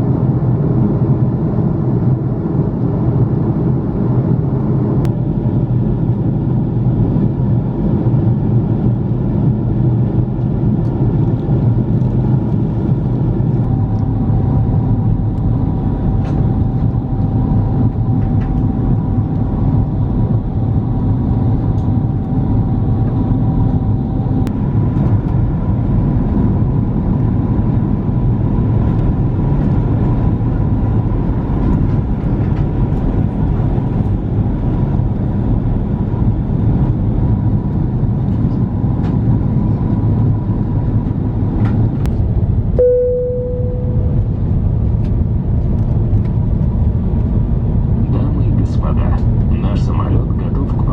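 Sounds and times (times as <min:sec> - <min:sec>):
airliner cabin rumble: 0:00.0 - 0:50.9
faint steady tone: 0:42.8 - 0:44.3.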